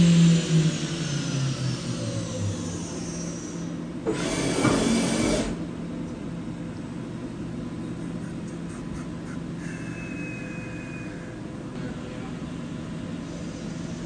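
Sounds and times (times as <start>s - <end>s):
spindle whine winding down: 0.0s - 5.6s.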